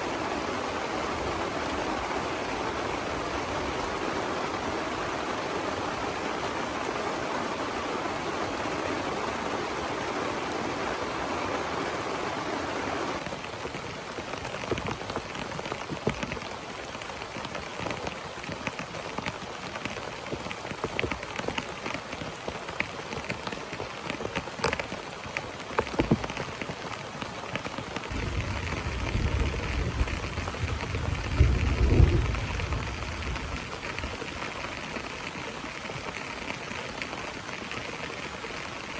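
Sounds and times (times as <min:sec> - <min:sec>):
heavy rain hissing: 0:00.0 - 0:13.3, 0:26.8 - 0:38.9
rain drops pattering: 0:00.0 - 0:38.9
thunder rumble: 0:28.1 - 0:34.4.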